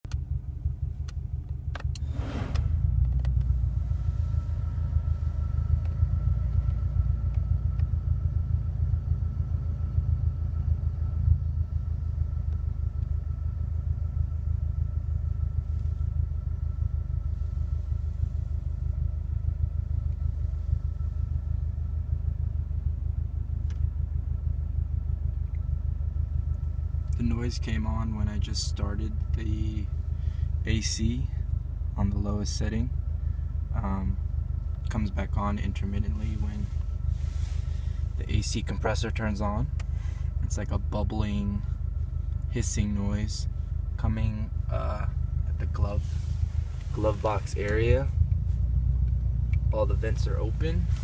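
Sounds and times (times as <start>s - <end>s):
engine and blower hum: 0.1s - 51.0s
air conditioning bubbling hiss: 0.2s - 51.0s
short rush of noise: 2.0s - 3.0s.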